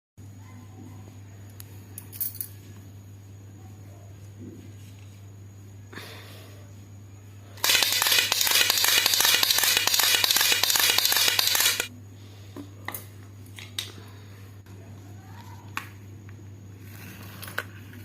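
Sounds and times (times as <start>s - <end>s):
toy mechanism clattering clicks: 7.6s - 11.9s.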